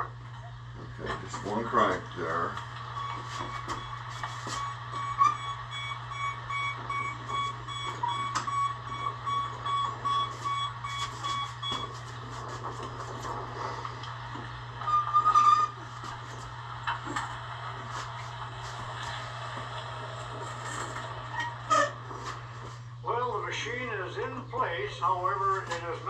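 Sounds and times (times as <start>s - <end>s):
electronic warning beeps: 2.3s - 13.5s, 14.8s - 15.9s.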